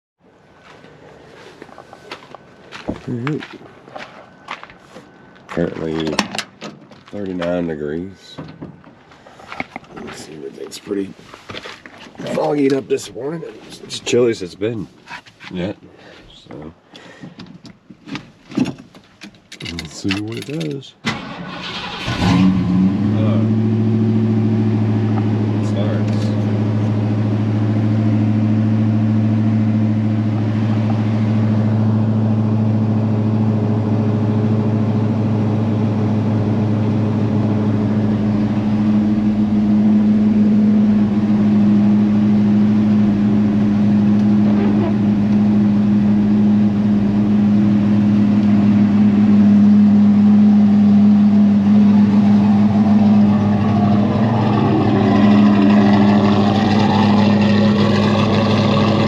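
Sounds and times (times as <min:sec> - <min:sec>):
car engine idling: 0:23.0 - 0:59.0.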